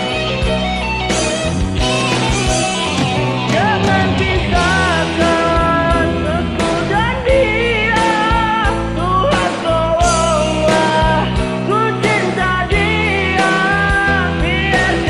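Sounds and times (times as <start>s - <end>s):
band playing with vibrato melody: 0.0s - 15.0s.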